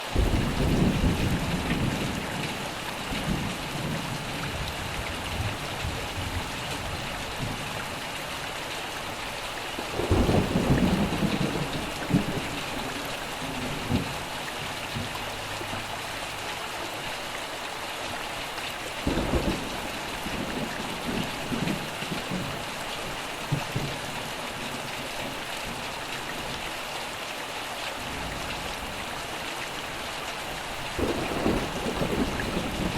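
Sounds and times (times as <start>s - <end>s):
heavy rain: 0.0s - 32.9s
rolling thunder: 0.2s - 7.8s, 9.9s - 15.9s, 19.0s - 22.6s, 31.0s - 32.9s.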